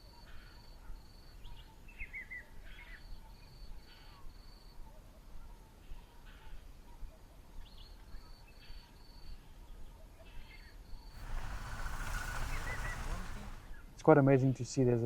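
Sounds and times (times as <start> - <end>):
loud rushing noise: 11.2 - 13.8.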